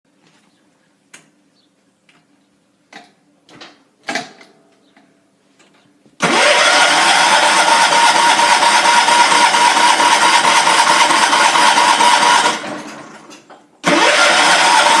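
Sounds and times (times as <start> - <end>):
lawn tractor engine starting and running: 6.2 - 15.0.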